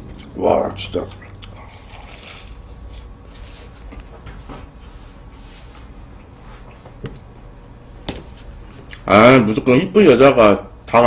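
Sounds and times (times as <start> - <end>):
quiet chewing of pastry: 1.1 - 4.1.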